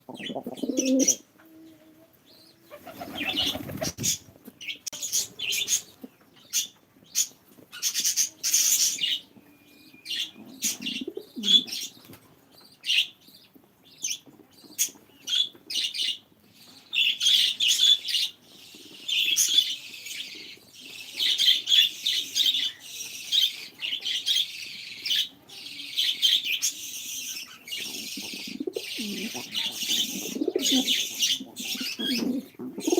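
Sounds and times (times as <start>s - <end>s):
pigeons cooing: 0.0s - 1.8s, 2.6s - 4.2s, 10.0s - 12.0s, 25.0s - 32.9s
wing flaps: 2.8s - 4.2s.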